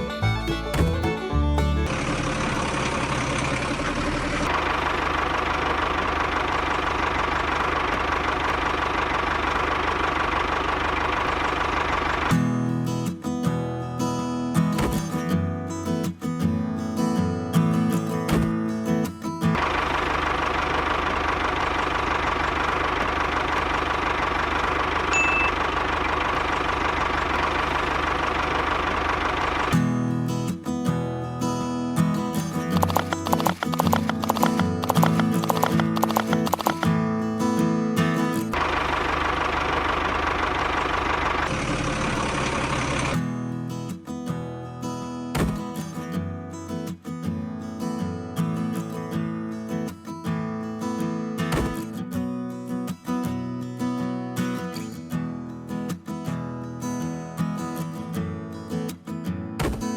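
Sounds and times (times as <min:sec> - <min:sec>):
small engine knocking: 0:00.0 - 0:06.8, 0:32.7 - 0:36.9
short high beep: 0:25.1 - 0:25.7
motor running with fast knock: 0:32.8 - 0:36.9.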